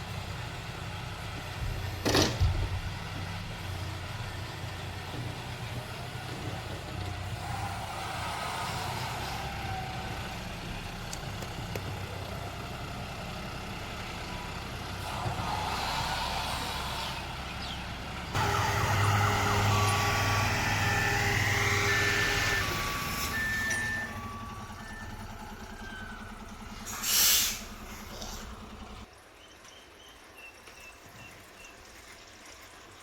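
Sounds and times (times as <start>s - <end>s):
tractor engine running: 0.0s - 29.1s
short steady tones: 18.4s - 29.0s.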